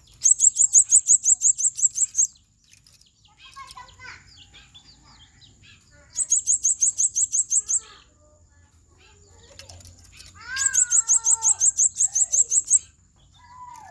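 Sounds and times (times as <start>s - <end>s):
parrot chirping shrilly: 0.2s - 2.3s, 5.6s - 8.0s, 10.4s - 12.9s.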